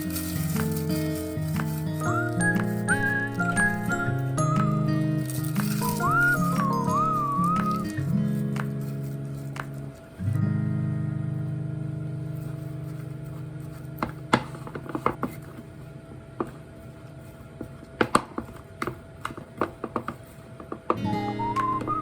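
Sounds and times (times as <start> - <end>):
guitar chord: 0.0 - 9.2, 10.2 - 14.7, 21.0 - 22.0
guitar music with whistled tune: 0.0 - 14.3, 21.0 - 22.0.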